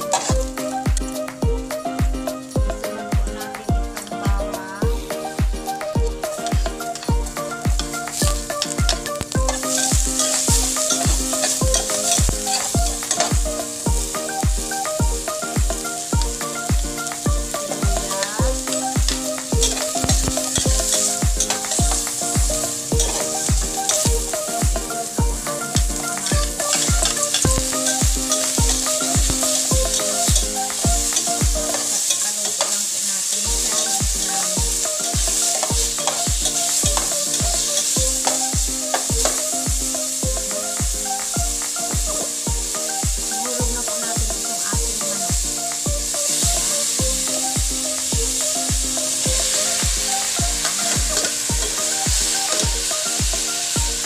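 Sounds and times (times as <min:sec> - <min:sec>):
background music with steady beat: 0:00.0 - 0:54.0
vegetables sizzling in a pot: 0:00.0 - 0:54.0
spatula stirring: 0:07.9 - 0:13.9, 0:17.0 - 0:39.4.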